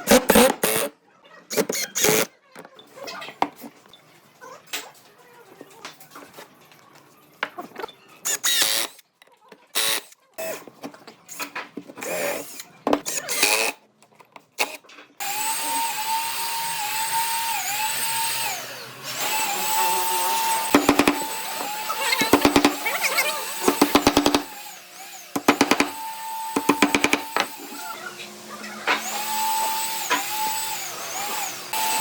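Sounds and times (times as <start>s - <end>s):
power drill whining: 15.2s - 32.0s.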